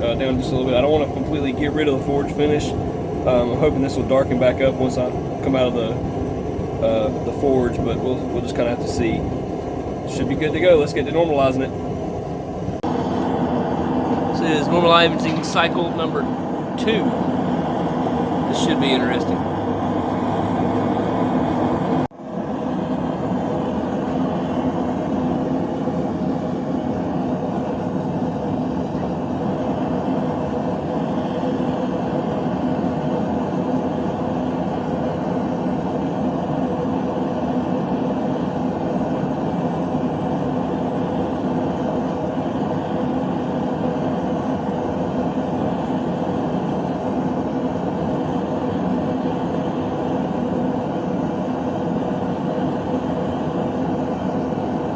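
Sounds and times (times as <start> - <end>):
low hum: 0.0 - 35.4
forge rushing: 13.1 - 21.2.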